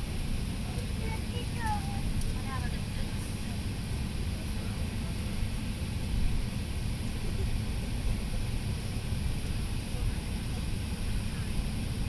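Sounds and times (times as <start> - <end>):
aircraft cabin rumble and hiss: 0.0 - 12.0.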